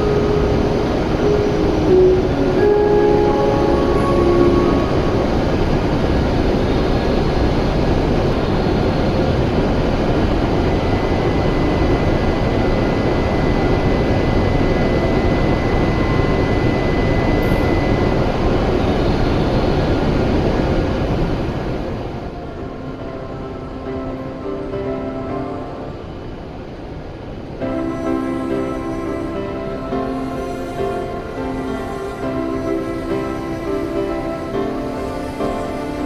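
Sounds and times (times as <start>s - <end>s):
faint high tone: 0.0s - 7.2s
high-speed train running: 0.0s - 36.0s.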